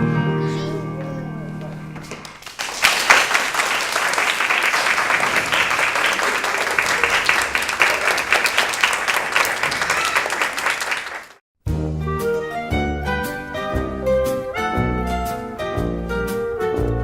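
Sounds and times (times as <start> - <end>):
audience applauding: 2.0 - 11.4.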